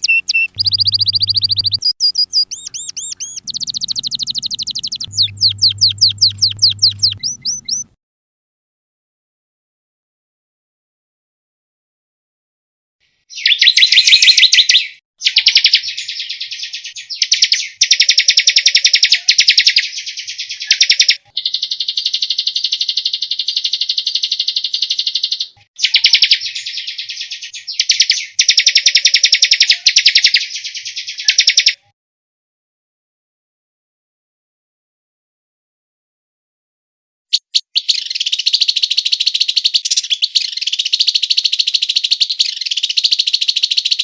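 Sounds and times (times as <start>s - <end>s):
songbird trilling: 0.0s - 7.9s, 13.3s - 31.8s, 37.3s - 44.0s.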